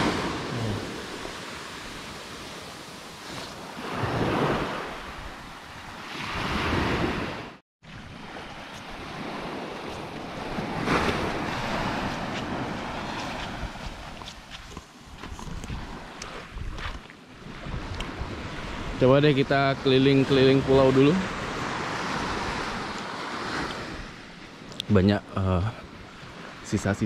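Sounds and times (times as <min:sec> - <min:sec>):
small waves washing onto beach: 0:00.0 - 0:24.7
wind on microphone: 0:08.7 - 0:19.2.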